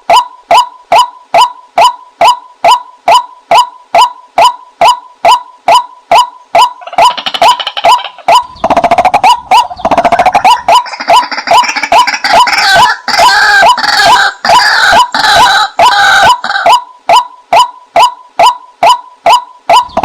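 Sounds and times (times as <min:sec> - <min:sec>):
bird kwak calls: 0:00.1 - 0:20.0
rapid rattle of bird notes: 0:08.4 - 0:09.2.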